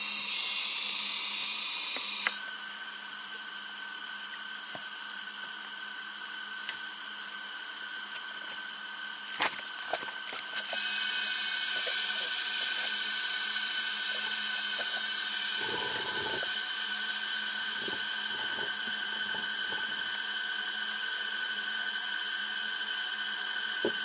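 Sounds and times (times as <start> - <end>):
high-pitched drone: 10.7 - 20.3.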